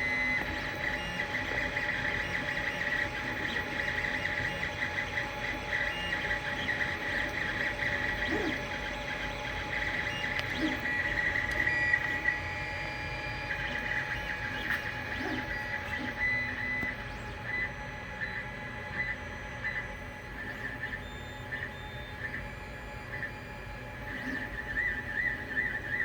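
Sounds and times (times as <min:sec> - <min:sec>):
cooling fans humming: 0:00.0 - 0:26.0
stepper motors whining: 0:00.0 - 0:26.0.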